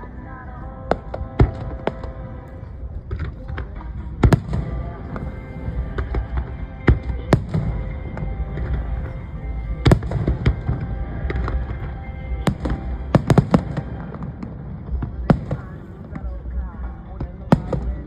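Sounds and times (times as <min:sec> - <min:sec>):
steady rumble: 0:00.0 - 0:18.0
fireworks bangs: 0:03.1 - 0:16.5.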